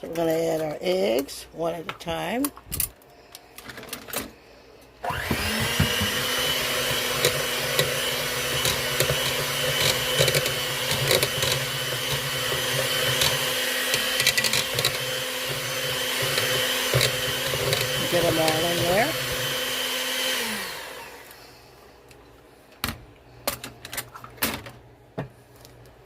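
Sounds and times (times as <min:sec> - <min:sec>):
electric mixer motor whine: 0:05.0 - 0:21.8
mixer clicks: 0:05.1 - 0:20.8.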